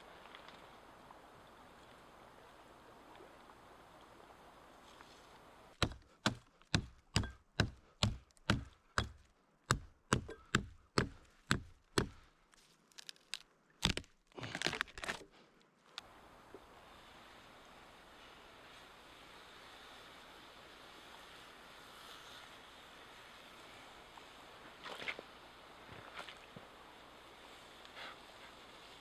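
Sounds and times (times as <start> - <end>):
wood being chopped: 5.7 - 12.2, 13.8 - 15.2.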